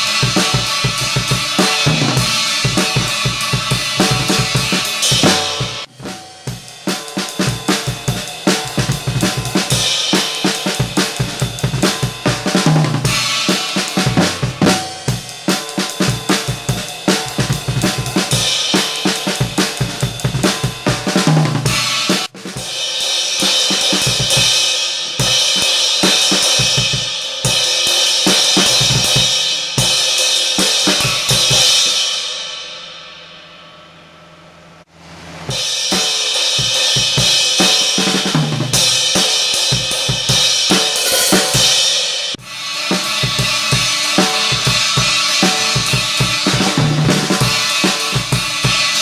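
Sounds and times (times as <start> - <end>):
rock drumming on drum kit: 0.0 - 32.5, 35.5 - 49.0.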